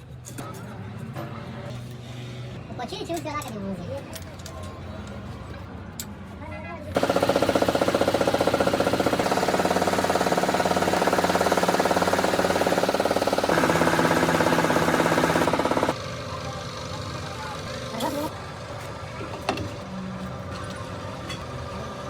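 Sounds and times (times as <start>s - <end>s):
machine pulsing rapidly: 7.0s - 16.0s.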